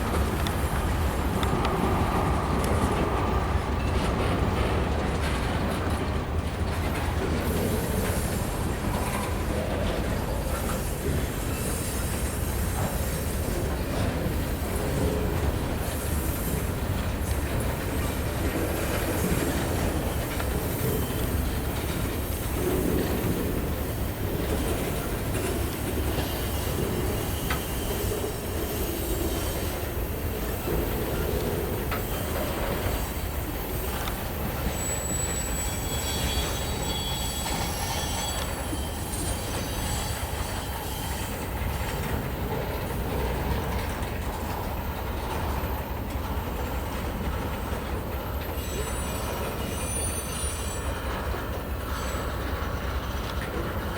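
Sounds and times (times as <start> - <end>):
train wheels rumbling on rail: 0.0 - 53.9
high wheel squeal: 10.0 - 13.8, 14.7 - 42.2, 48.2 - 53.2.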